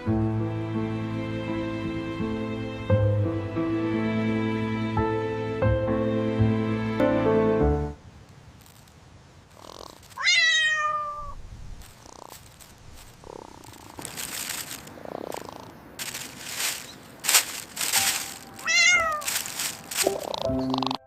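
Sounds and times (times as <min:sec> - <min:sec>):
scuffling noises: 0:08.6 - 0:20.9
cat meowing: 0:10.1 - 0:11.4, 0:18.6 - 0:19.3.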